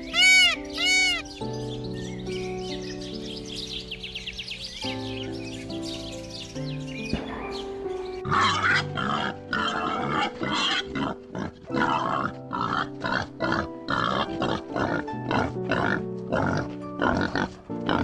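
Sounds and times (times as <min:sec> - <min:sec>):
background music with held notes: 0:00.0 - 0:18.0
pigs grunting: 0:08.2 - 0:18.0.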